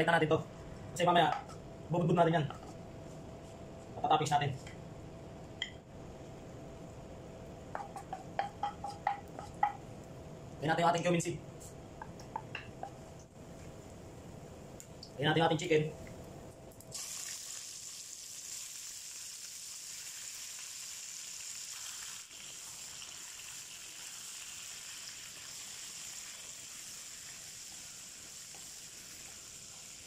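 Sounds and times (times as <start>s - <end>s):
chicken sizzling in hot oil: 16.9s - 30.0s.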